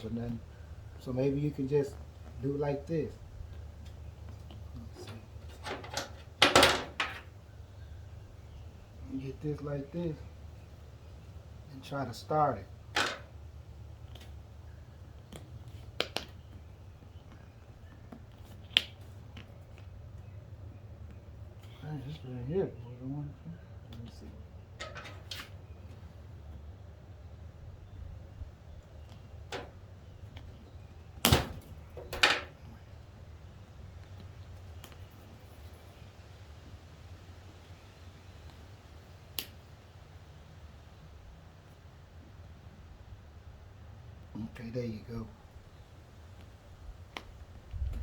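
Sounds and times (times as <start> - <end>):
sharp plastic snaps: 15.1 - 16.6, 39.3 - 39.6.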